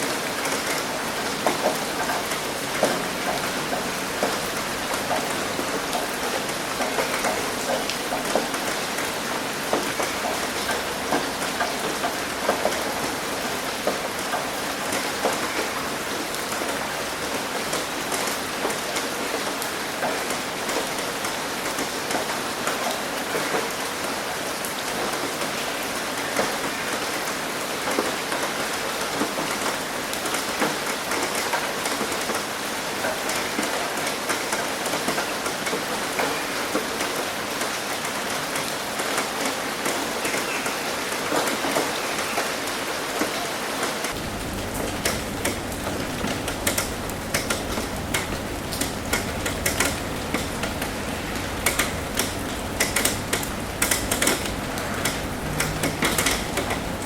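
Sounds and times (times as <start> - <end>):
rain hitting a roof: 0.0 - 57.0.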